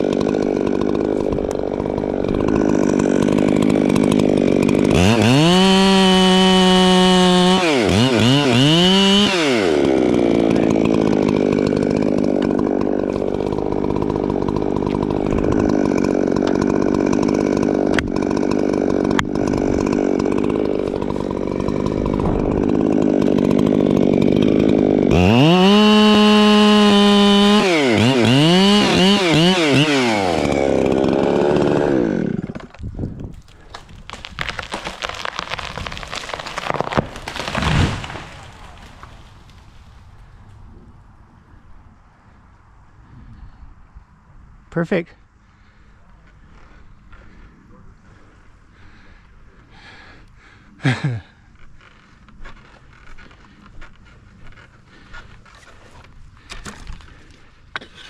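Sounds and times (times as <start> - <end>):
chainsaw revving and idling: 0.0 - 32.8, 33.4 - 40.4.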